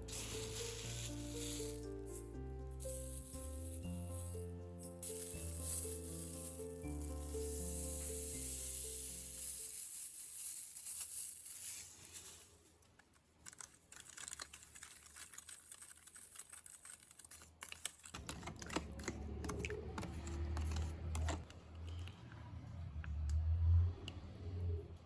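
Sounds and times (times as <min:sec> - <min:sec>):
sizzling in a pan: 0:00.0 - 0:12.6.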